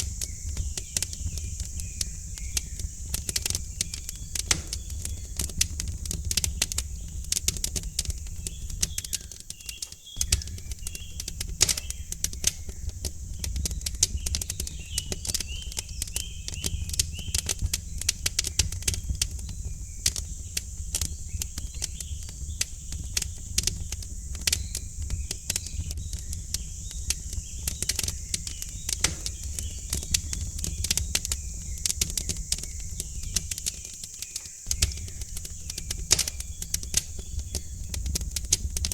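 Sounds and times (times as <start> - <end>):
small birds chirping: 0.0 - 38.9
wood fire crackling: 0.0 - 38.9.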